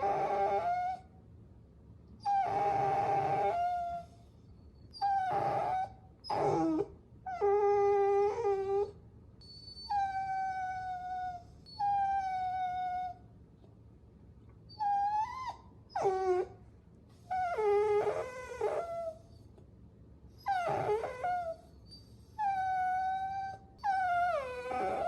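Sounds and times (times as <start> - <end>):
puppies whining: 0.0 - 1.0, 2.2 - 4.2, 4.8 - 13.2, 14.7 - 16.6, 17.3 - 19.4, 20.4 - 25.0.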